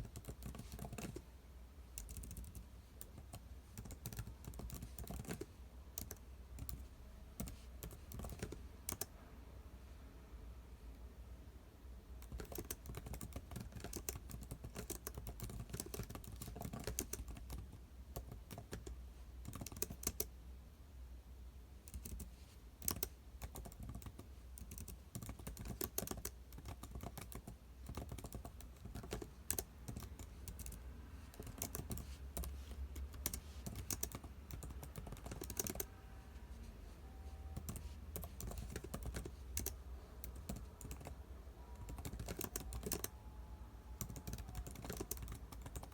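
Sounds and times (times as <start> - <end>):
typing on computer keyboard: 0.0 - 1.2, 2.0 - 9.1, 12.2 - 20.3, 21.9 - 36.2, 37.0 - 43.2, 43.9 - 45.9
faint low hum: 0.0 - 45.9.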